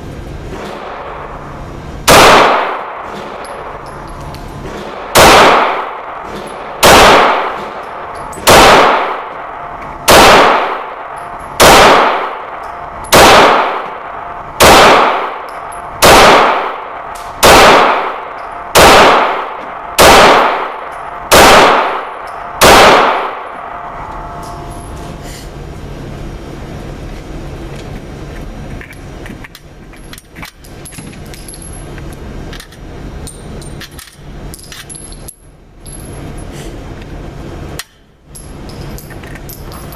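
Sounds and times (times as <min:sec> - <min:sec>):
pistol shots echoing indoors: 0:00.6 - 0:24.8
metallic clicks and rattles: 0:28.7 - 0:36.5, 0:37.8 - 0:39.9.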